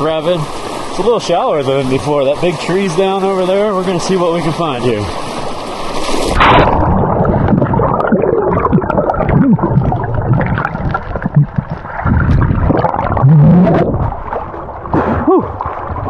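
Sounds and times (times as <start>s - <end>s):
river current underwater: 0.0s - 16.0s
bubble pops: 6.4s - 14.1s.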